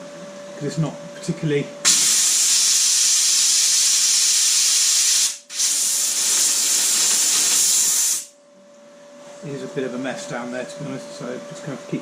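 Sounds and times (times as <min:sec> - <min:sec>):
welding arc hissing: 0:01.8 - 0:08.3.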